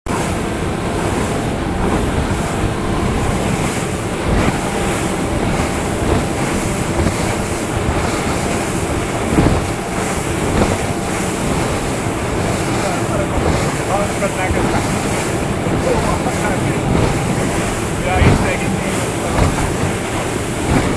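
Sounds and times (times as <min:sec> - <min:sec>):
motorboat engine drone: 0:00.1 - 0:20.9
wind and water rushing: 0:00.1 - 0:20.9
short thumps: 0:16.6 - 0:20.9.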